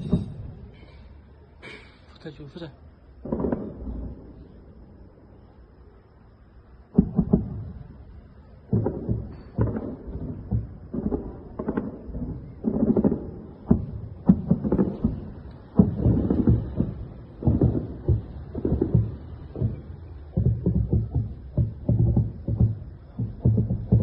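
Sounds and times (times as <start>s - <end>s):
anti-aircraft gun firing: 3.2s - 4.1s, 8.7s - 21.1s.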